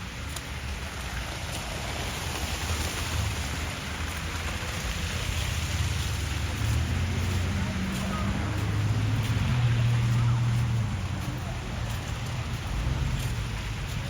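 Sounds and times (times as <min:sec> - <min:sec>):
tyres hissing on wet street: 0:00.0 - 0:14.0
low engine rumble: 0:02.8 - 0:14.0.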